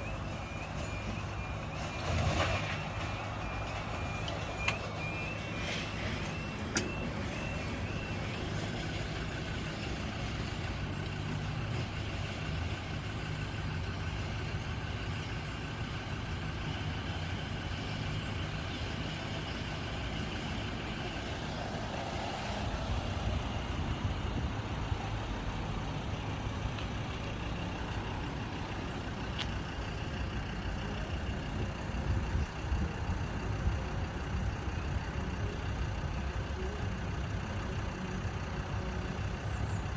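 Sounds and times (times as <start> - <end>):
level crossing alarm beeping: 0.0 - 10.9
road traffic engine rumble: 0.0 - 39.9.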